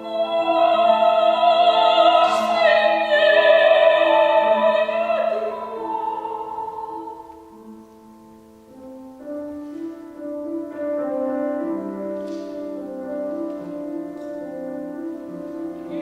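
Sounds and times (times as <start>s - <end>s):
piano accompaniment: 0.0s - 16.0s.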